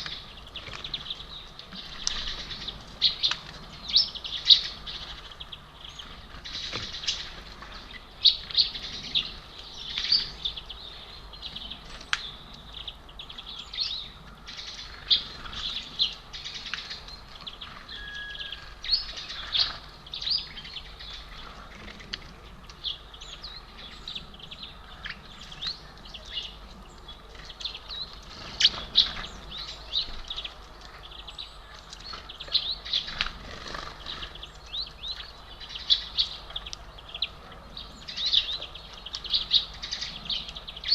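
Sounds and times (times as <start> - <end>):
small birds chirping: 0.0 - 40.9
bird wing flutters: 33.1 - 34.4.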